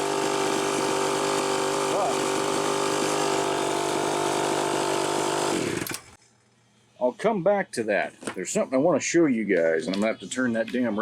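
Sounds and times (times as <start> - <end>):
chainsaw engine running: 0.0 - 6.2.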